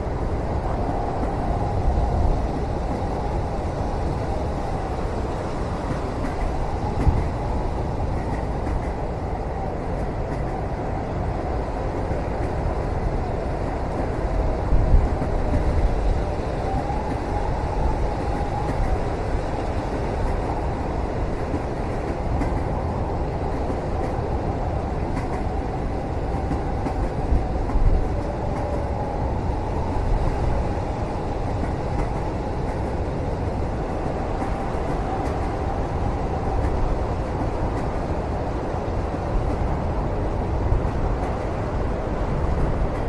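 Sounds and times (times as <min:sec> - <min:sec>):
train rumbling on rails: 0:00.0 - 0:43.0.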